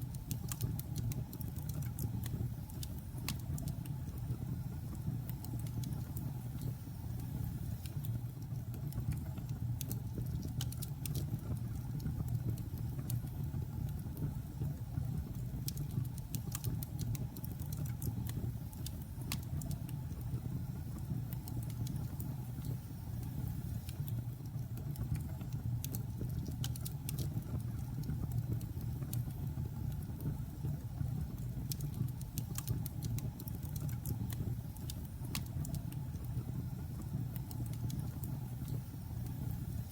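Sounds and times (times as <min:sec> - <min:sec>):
wood crackling and popping: 0:07.8 - 0:14.4, 0:21.0 - 0:39.4.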